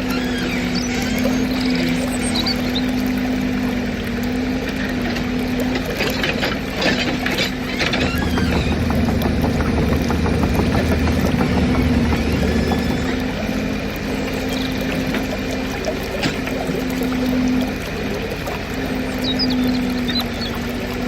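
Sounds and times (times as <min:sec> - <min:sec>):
toy excavator engine drone: 0:00.0 - 0:03.0, 0:07.2 - 0:15.7
deeper rumble: 0:07.7 - 0:17.0.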